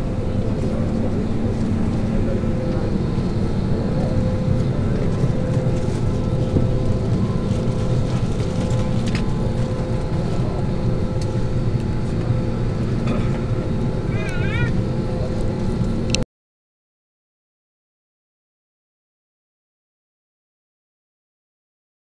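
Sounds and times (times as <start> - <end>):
cabin air-conditioning drone: 0.0 - 16.2.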